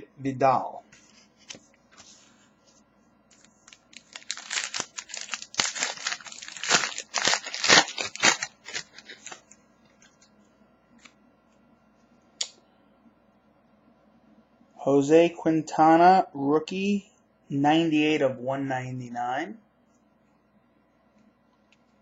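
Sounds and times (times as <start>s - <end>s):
packaging torn and crinkled: 3.3s - 9.6s.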